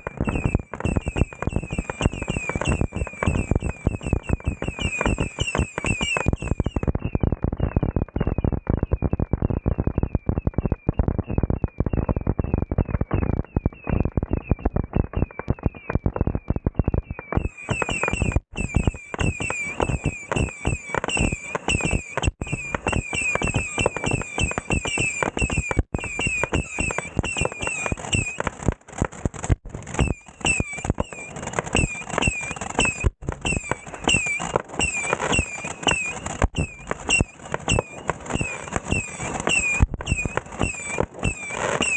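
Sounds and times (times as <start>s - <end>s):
short high firework chirps: 0.0s - 9.2s, 9.8s - 41.9s
fireworks bangs and crackling: 0.0s - 41.9s.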